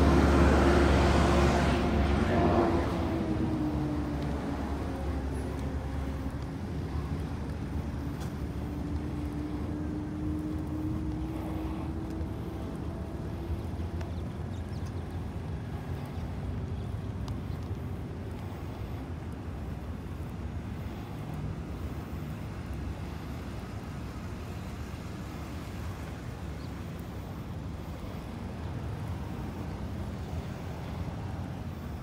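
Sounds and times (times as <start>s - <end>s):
engine hum rising in pitch: 0.0s - 17.7s
low rumble of passing vehicles: 0.0s - 32.0s.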